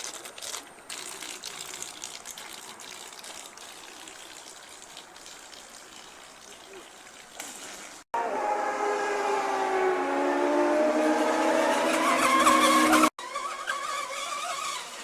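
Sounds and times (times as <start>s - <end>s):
model boat motor whine: 8.2s - 15.0s.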